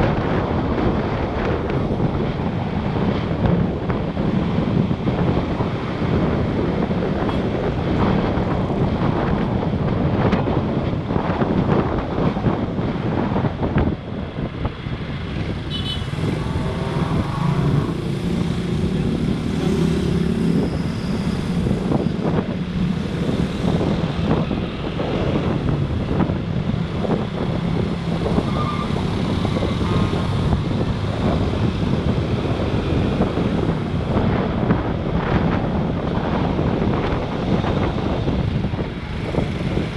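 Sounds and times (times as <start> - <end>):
vehicles passing: 0.0 - 39.9
wind on microphone: 0.0 - 39.9.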